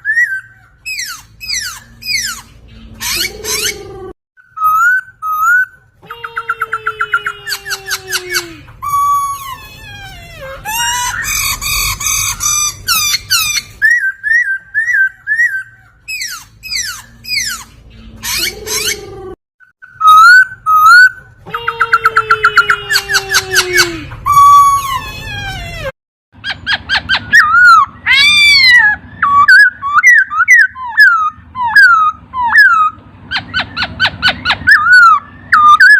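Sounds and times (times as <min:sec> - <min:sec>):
laughingthrush whistled song: 0:00.0 - 0:03.8, 0:10.7 - 0:17.7, 0:26.5 - 0:35.9.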